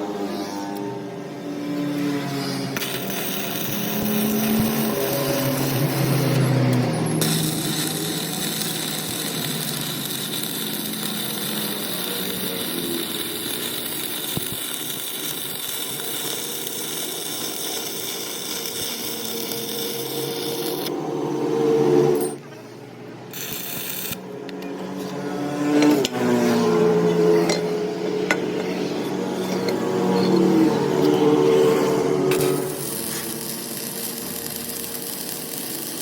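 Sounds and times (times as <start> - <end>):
power tool working metal: 1.5 - 22.4, 23.3 - 36.0.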